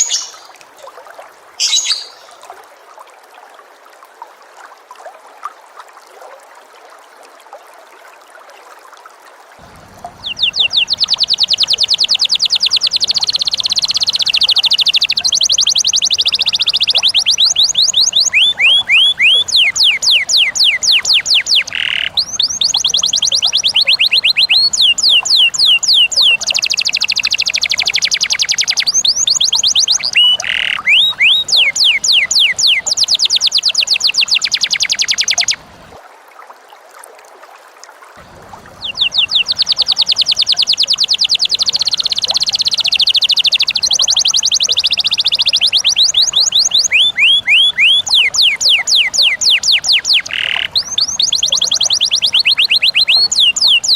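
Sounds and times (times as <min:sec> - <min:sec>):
songbird trilling: 0:00.0 - 0:00.5, 0:01.6 - 0:02.4, 0:09.6 - 0:35.7, 0:38.4 - 0:53.9.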